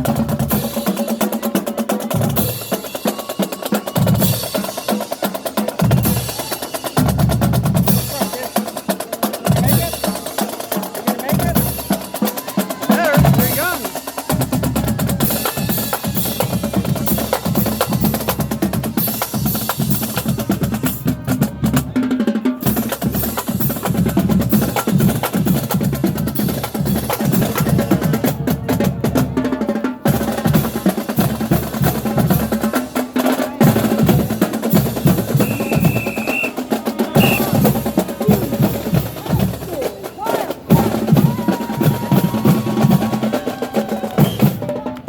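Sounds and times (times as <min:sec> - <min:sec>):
bass drums: 0:09.4 - 0:10.2, 0:12.8 - 0:22.0, 0:37.1 - 0:43.5
cymbals: 0:33.6 - 0:43.2.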